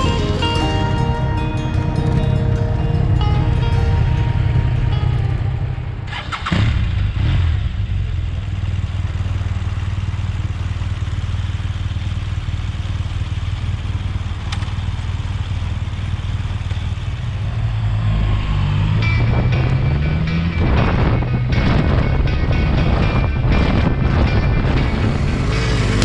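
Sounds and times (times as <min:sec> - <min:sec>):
motorcycle engine running: 0:00.0 - 0:26.0
wind noise: 0:17.4 - 0:26.0.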